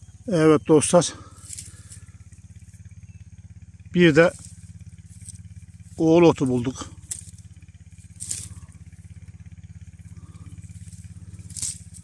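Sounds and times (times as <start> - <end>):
small engine humming: 0.0 - 12.0
short rustles: 8.0 - 8.8, 10.0 - 12.0.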